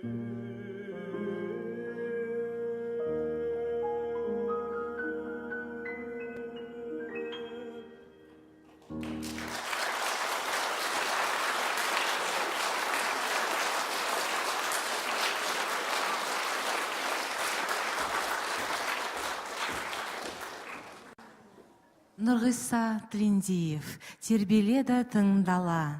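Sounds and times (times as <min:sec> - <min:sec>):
piano accompaniment: 0:00.0 - 0:20.8
audience applauding: 0:08.9 - 0:21.2.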